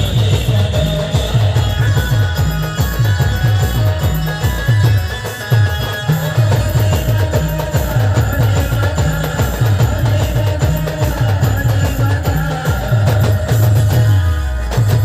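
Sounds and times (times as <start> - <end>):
driving drum beat: 0.0 - 15.0.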